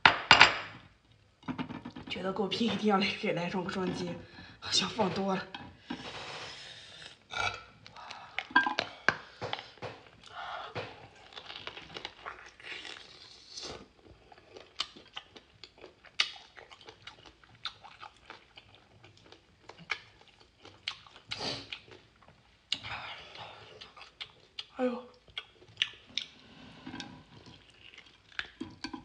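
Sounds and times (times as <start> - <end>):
person chewing and crunching: 11.0 - 22.8, 23.6 - 29.0.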